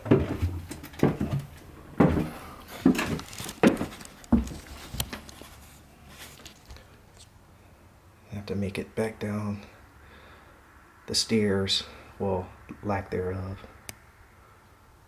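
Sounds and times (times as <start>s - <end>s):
heavy footsteps on floor: 0.0s - 5.3s.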